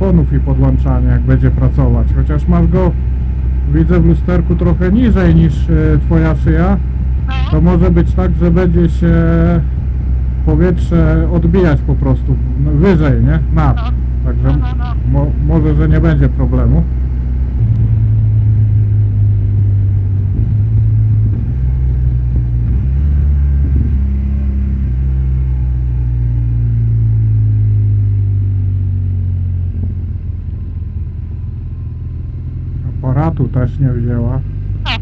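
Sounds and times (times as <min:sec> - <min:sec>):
motorcycle engine drone: 0:00.0 - 0:35.0
wind rumble on microphone: 0:17.5 - 0:24.8.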